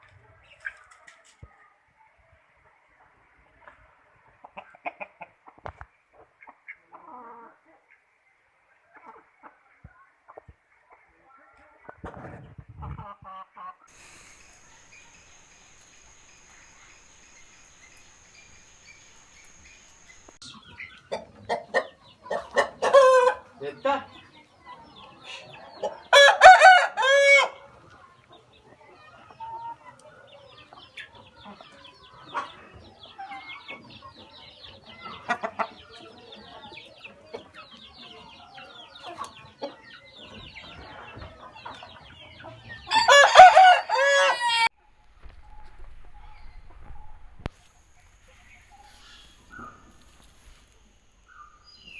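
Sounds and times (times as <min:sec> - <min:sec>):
chickens clucking: 0:13.9 - 0:20.4, 0:45.2 - 0:51.9
faint chirping: 0:13.9 - 0:20.4, 0:44.8 - 0:51.9
rooster crowing: 0:13.9 - 0:20.4, 0:42.9 - 0:44.7.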